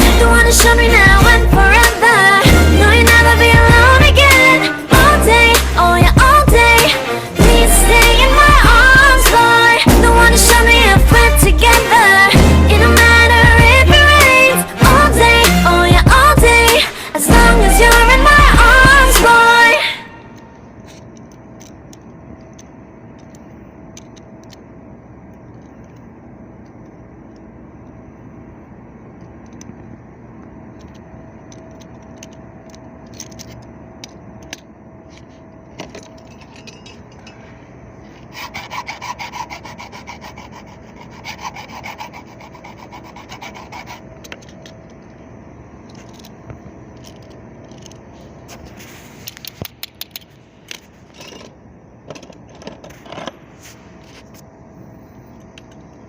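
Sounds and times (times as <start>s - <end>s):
steady hum: 0.0s - 56.0s
tool scraping and rasping: 38.2s - 44.6s.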